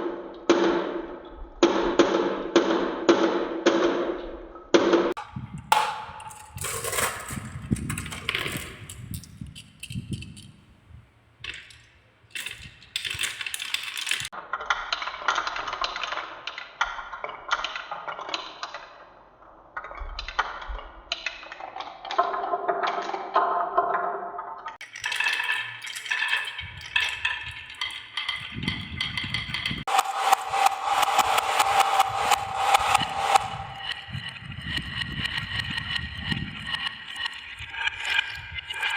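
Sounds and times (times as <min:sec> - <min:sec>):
marbles clattering down wooden run: 0:11.4 - 0:18.5, 0:24.8 - 0:29.9, 0:34.9 - 0:38.9.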